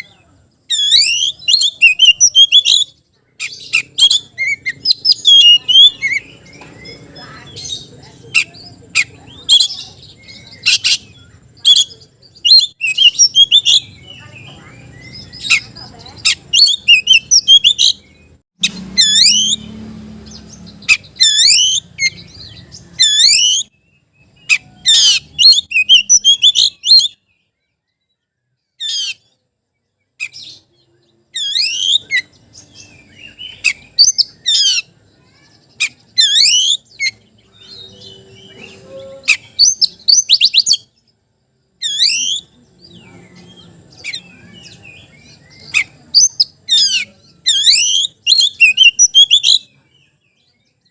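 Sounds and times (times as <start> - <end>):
bird singing swooping whistles: 0.7 - 2.9, 20.9 - 22.3, 22.9 - 23.7, 33.0 - 40.9, 41.8 - 42.5, 44.0 - 49.7.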